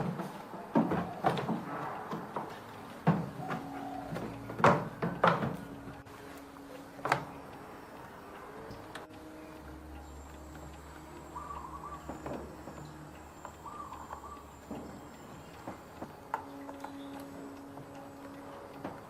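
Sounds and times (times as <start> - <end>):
hard parts knocking and clunking: 0.0 - 6.1, 6.7 - 8.1, 11.9 - 13.2, 14.1 - 19.0
faint steady hum: 0.0 - 19.0.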